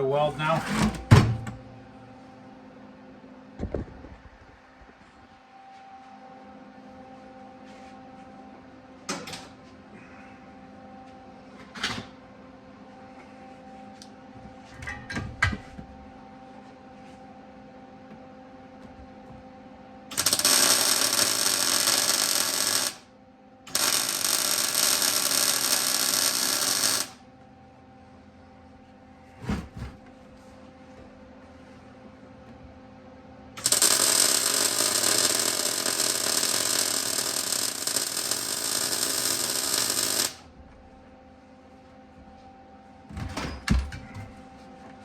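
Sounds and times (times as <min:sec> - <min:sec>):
steady low hum: 0:00.0 - 0:22.2, 0:22.9 - 0:38.2
arc welding crackling: 0:20.1 - 0:23.1, 0:23.7 - 0:27.2, 0:33.6 - 0:40.5.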